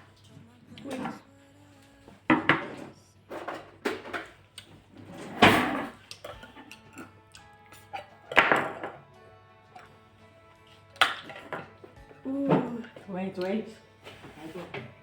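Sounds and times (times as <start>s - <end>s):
objects knocking on a table: 8.4s - 9.0s.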